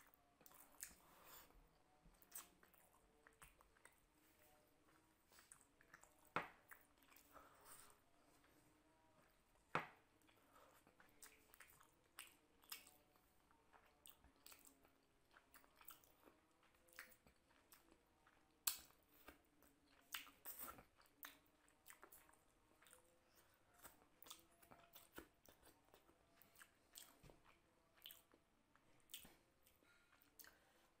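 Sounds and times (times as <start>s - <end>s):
man chewing food: 0.0s - 31.0s.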